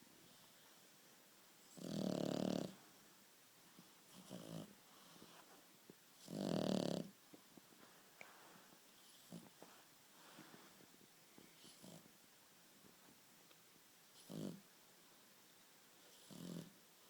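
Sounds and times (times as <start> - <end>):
dog snoring: 1.6 - 2.8, 4.1 - 5.3, 6.2 - 7.2, 9.0 - 9.5, 11.6 - 12.1, 14.2 - 14.7, 16.1 - 16.8
faint dog breath: 3.7 - 5.6, 7.8 - 12.2.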